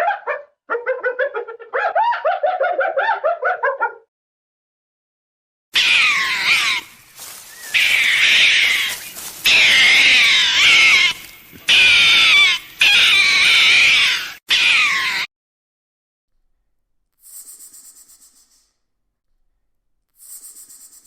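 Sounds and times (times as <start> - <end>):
animal high-pitched wavering cries: 5.8 - 15.3.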